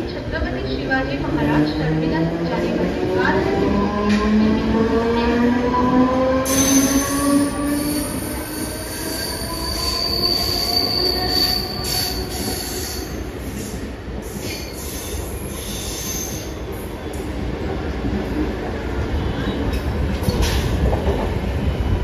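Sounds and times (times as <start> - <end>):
train wheel squeal: 6.5 - 13.7, 14.3 - 17.2.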